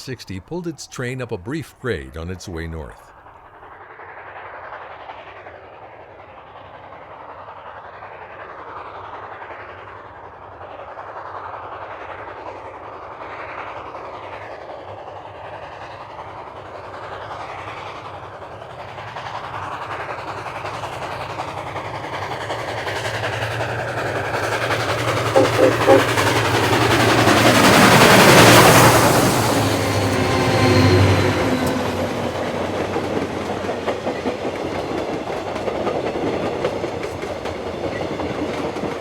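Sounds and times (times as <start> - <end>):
steam locomotive working: 16.3 - 39.0.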